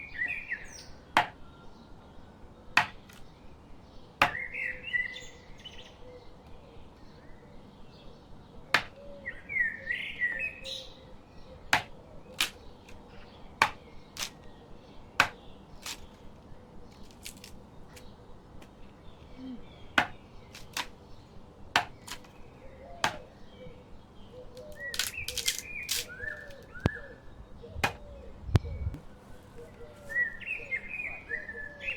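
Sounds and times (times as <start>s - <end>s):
birds chirping: 0.0s - 31.9s
knife chopping on cutting board: 11.8s - 12.6s, 13.6s - 14.4s, 20.0s - 20.9s, 21.8s - 22.3s, 23.0s - 23.2s, 27.8s - 28.0s.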